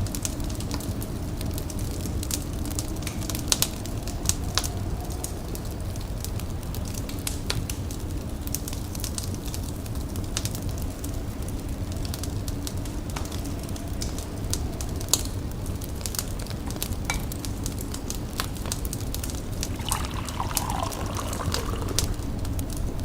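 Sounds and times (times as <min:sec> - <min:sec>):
wood fire crackling and popping: 0:07.0 - 0:23.0
tea pouring: 0:18.3 - 0:23.0.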